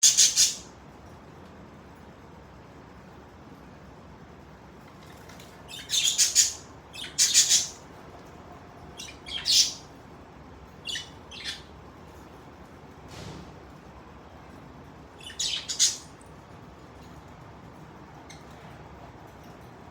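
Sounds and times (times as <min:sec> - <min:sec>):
budgerigars chirping and squawking: 0:00.0 - 0:00.7, 0:05.6 - 0:07.8, 0:08.9 - 0:09.9, 0:10.8 - 0:11.7, 0:15.2 - 0:16.2.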